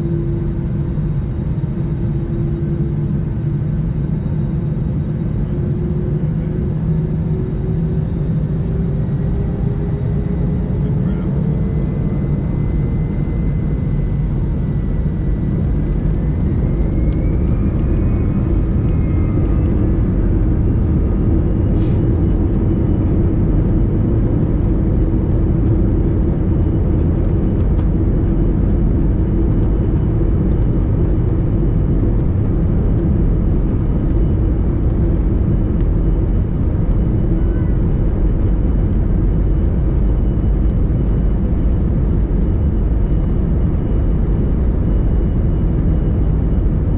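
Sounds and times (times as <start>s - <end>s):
jet engine rumble in cabin: 0.0s - 46.9s
thin engine whine: 0.0s - 46.9s.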